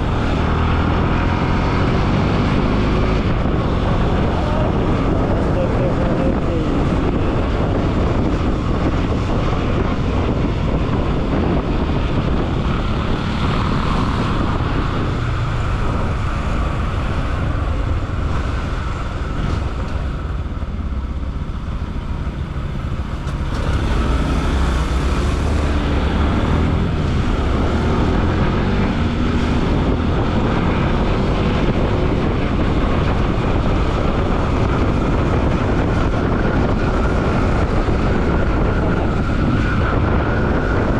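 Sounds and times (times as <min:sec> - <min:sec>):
wind rush on microphone: 0:00.0 - 0:40.9
motorcycle engine running: 0:01.1 - 0:40.9.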